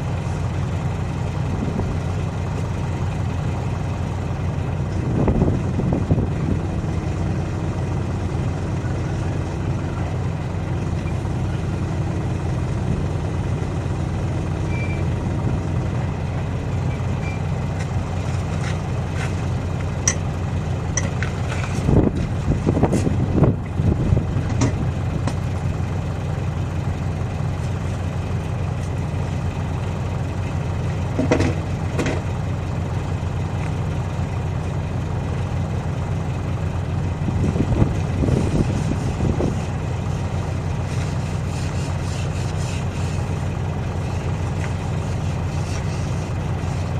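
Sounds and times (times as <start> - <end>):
large diesel engine idling: 0.0 - 46.9
knocks and clanks of tyre work: 16.8 - 23.8, 24.4 - 25.8, 30.4 - 32.5, 37.4 - 46.9.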